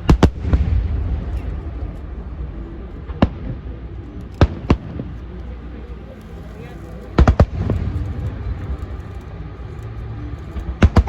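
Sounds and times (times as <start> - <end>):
fireworks bangs: 0.0 - 3.7
low rumble: 0.0 - 11.0.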